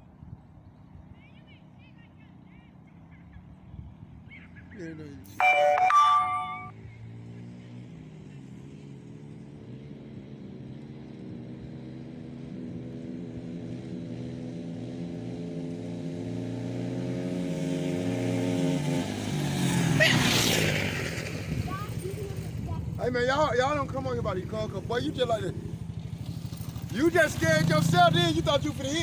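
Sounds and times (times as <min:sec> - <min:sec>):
small engine vehicle approaching: 0:00.0 - 0:29.0.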